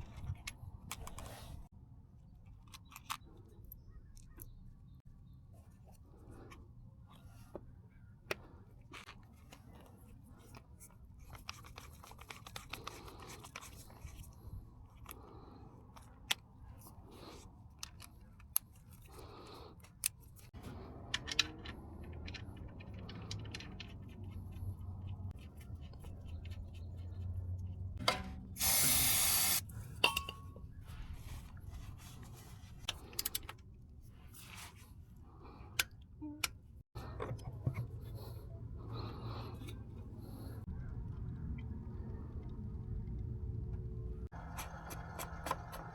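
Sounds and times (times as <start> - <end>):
short spray hiss: 28.6 - 29.6
low steady hum: 36.1 - 45.4.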